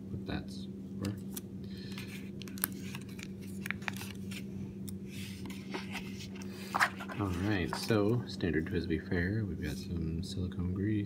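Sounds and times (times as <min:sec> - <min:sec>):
low electrical hum: 0:00.0 - 0:11.0
paper and packaging rustling: 0:01.9 - 0:04.5, 0:05.2 - 0:08.2.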